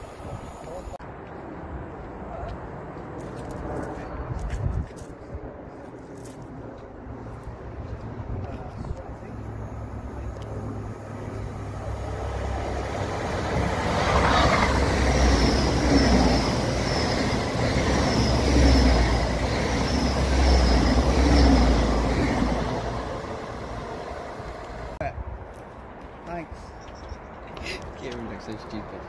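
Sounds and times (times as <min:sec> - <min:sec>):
train passing rumble: 0:00.0 - 0:04.3, 0:05.1 - 0:27.4.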